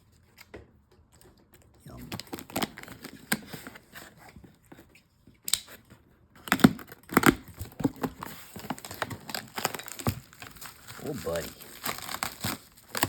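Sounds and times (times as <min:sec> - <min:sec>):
packaging rustling and crinkling: 0:01.9 - 0:04.9, 0:06.5 - 0:13.0.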